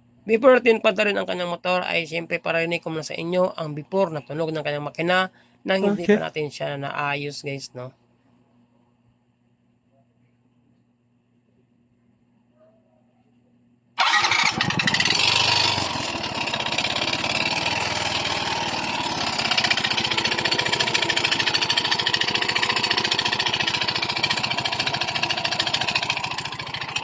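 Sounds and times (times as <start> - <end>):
scooter engine knocking and rattling: 14.0 - 27.0.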